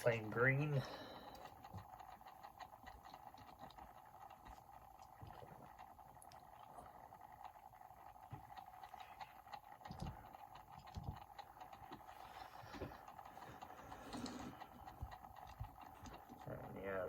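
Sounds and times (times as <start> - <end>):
faint steady hum: 0.0 - 17.0
toy car clicks and knocks: 1.3 - 12.1.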